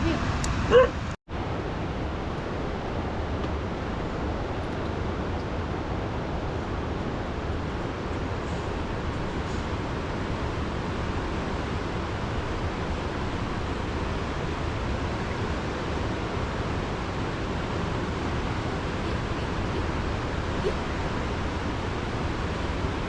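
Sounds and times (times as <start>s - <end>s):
river rushing in flood: 1.4s - 23.0s.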